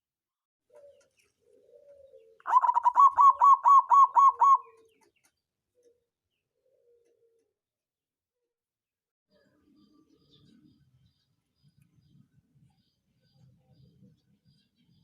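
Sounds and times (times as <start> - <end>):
dove cooing: 0.7 - 5.0, 5.7 - 7.6.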